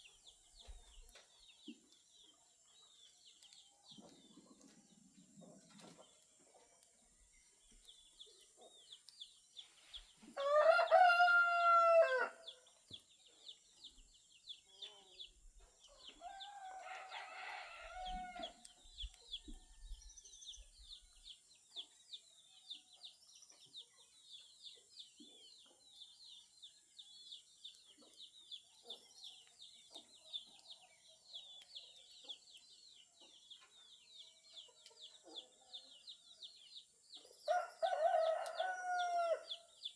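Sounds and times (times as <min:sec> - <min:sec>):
rooster crowing: 0:10.4 - 0:12.4, 0:16.2 - 0:18.6, 0:37.5 - 0:39.5.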